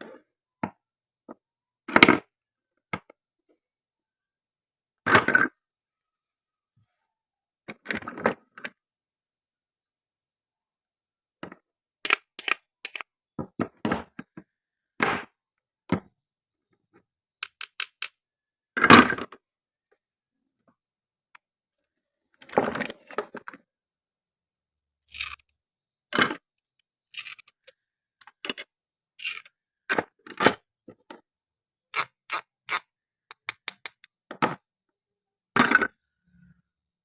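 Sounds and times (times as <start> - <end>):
toy knife cutting toy fruit: 12.0 - 13.0, 25.1 - 25.5, 27.1 - 27.7, 29.2 - 29.5, 31.9 - 34.0.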